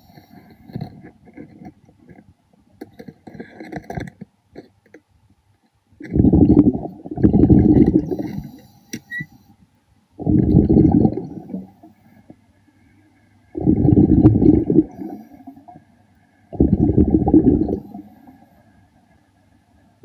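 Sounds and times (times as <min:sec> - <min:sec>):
scattered clicks and crackles: 0:00.0 - 0:09.1
underwater air bubbling: 0:06.0 - 0:08.8, 0:10.2 - 0:12.1, 0:13.5 - 0:15.9, 0:16.5 - 0:18.4.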